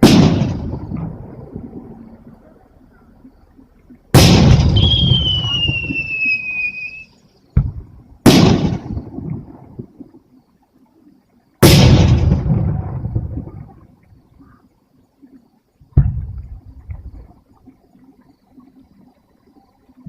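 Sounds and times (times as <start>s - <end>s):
sharp crack: 0.0s - 1.2s, 4.1s - 6.7s, 7.6s - 9.3s, 11.6s - 13.0s
fireworks booming: 0.0s - 2.0s, 4.1s - 9.7s, 11.6s - 13.7s, 15.9s - 16.5s
high falling whistle: 4.6s - 7.2s.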